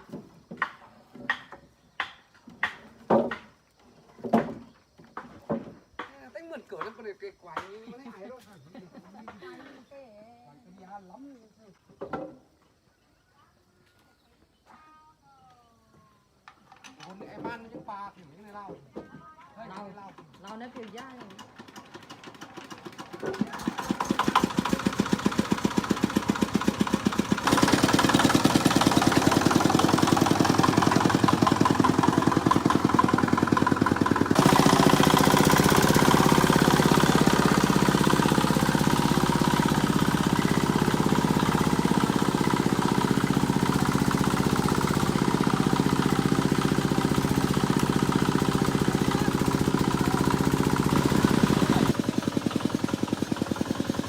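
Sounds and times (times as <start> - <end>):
small engine running: 19.8 - 54.0.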